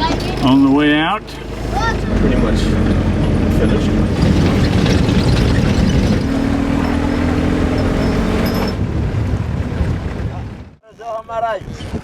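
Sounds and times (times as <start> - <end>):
vehicle engine running: 0.1 - 8.7.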